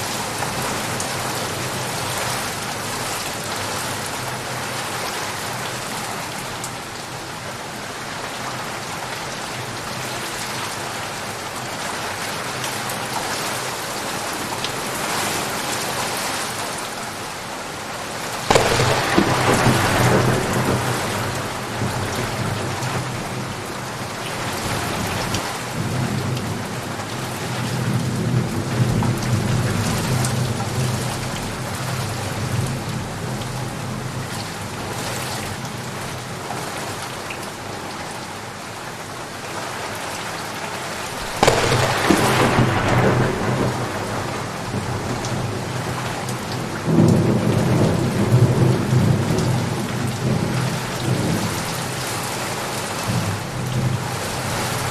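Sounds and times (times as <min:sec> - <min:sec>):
heavy rain: 0:00.0 - 0:54.9
loud thunderclap: 0:18.5 - 0:22.8, 0:41.2 - 0:45.6
rolling thunder: 0:18.5 - 0:23.2, 0:41.2 - 0:46.1.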